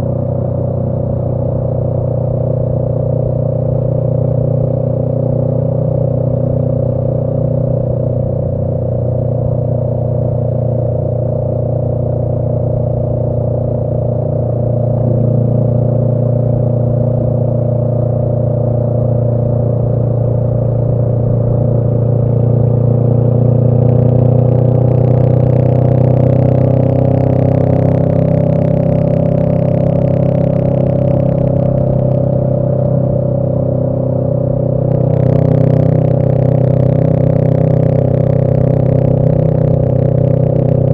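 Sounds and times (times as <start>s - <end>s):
motorcycle engine cruising: 0.0s - 40.9s.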